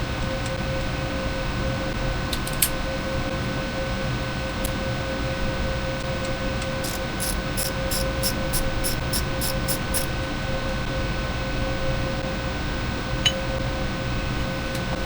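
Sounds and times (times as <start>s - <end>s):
faint hum: 0.0s - 15.0s
steady hiss: 6.8s - 10.4s.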